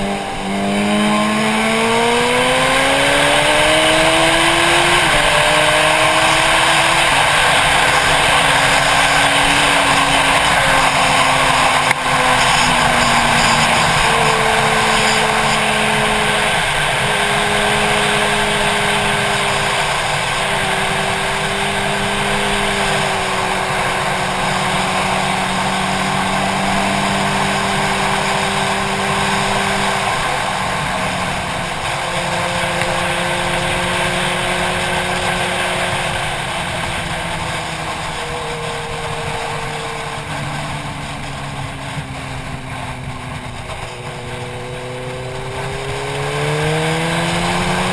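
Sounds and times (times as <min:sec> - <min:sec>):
motorcycle engine running: 0:00.0 - 0:47.9
wind rush: 0:00.0 - 0:47.9.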